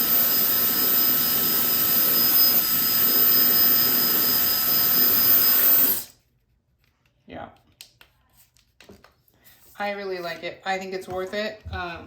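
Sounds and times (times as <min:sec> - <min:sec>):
hair dryer running: 0:00.0 - 0:06.1.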